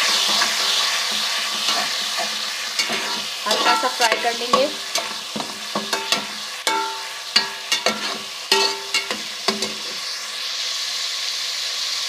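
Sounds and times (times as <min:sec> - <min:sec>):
paste and onions sizzling in ghee: 0:00.0 - 0:12.0
spoon knocking against pot: 0:02.8 - 0:09.9.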